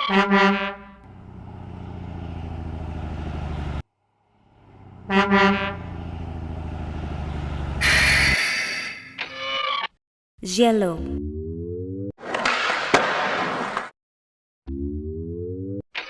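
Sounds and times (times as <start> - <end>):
truck horn honking: 0.0 - 2.0, 4.5 - 9.1
truck engine running: 0.8 - 8.4.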